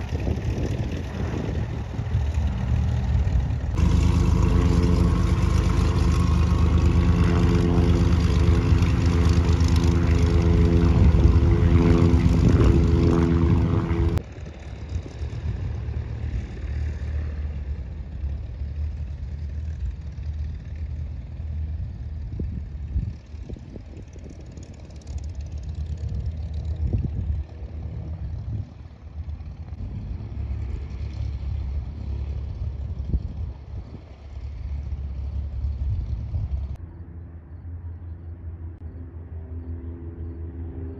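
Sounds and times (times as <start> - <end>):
low rumble: 0.0 - 40.4
propeller airplane engine drone: 0.0 - 40.9.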